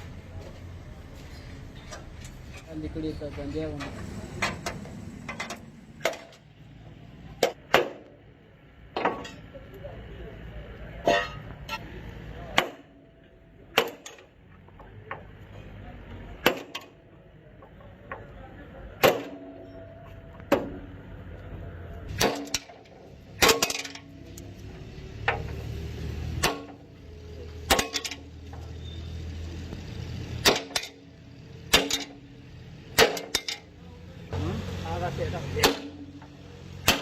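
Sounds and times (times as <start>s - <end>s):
hammer striking metal: 7.4s - 8.1s, 12.6s - 14.3s, 19.0s - 21.0s, 22.1s - 24.4s, 26.4s - 26.9s, 27.6s - 28.3s, 30.4s - 31.0s, 31.7s - 32.3s, 33.0s - 33.7s, 35.4s - 37.0s.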